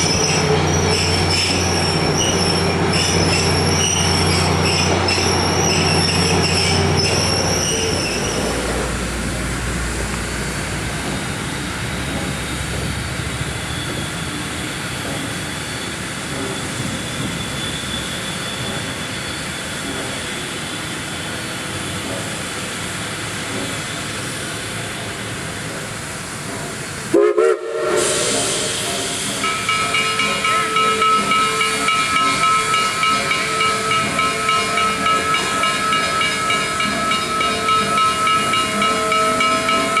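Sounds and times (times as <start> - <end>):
steam hiss: 0.0 - 40.0
steam locomotive exhaust pulsing: 0.0 - 40.0
train rumbling along rails: 0.0 - 40.0
steam whistle: 27.1 - 40.0.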